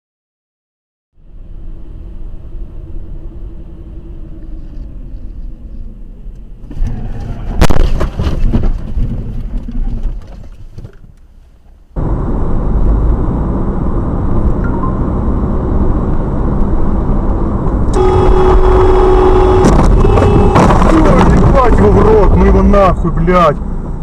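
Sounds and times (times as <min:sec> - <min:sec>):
car road and engine noise: 0:01.1 - 0:24.0
rattling and scraping: 0:04.4 - 0:11.8, 0:19.6 - 0:22.7.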